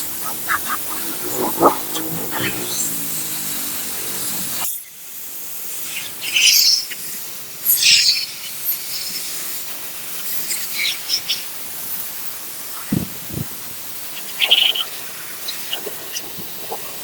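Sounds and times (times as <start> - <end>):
steam cleaner hissing: 0.0 - 4.6.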